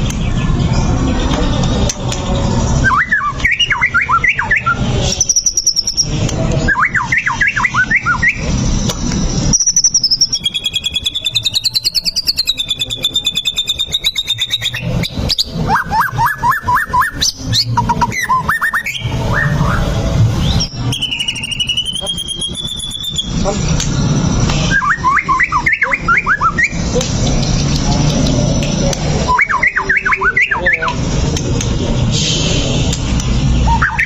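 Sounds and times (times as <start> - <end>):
bird singing whistled notes: 2.8 - 8.6, 9.2 - 27.0, 29.2 - 31.0, 33.6 - 34.0.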